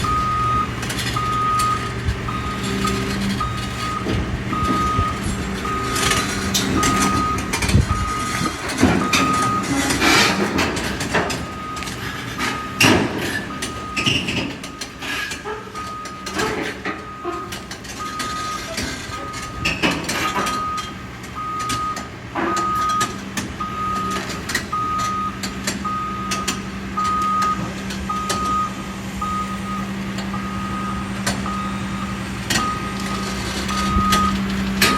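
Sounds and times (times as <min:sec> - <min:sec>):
truck engine running: 0:00.0 - 0:34.9
truck reversing alarm beeping: 0:00.0 - 0:34.9
knocks and clatters: 0:00.8 - 0:20.6.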